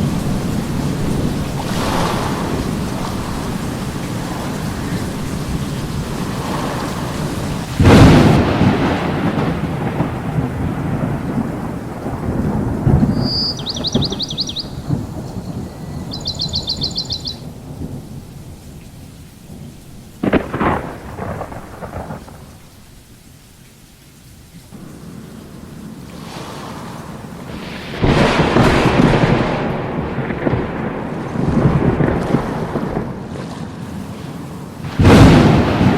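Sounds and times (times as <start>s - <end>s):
thunder rumbling: 0.0s - 23.0s, 24.7s - 35.9s
heavy rain: 0.0s - 35.9s
bird trilling: 13.0s - 17.4s.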